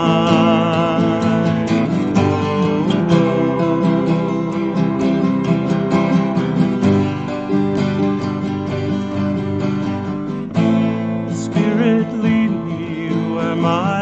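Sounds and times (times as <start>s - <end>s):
person singing: 0.0s - 5.4s, 11.2s - 14.0s
acoustic guitar strumming: 0.0s - 14.0s.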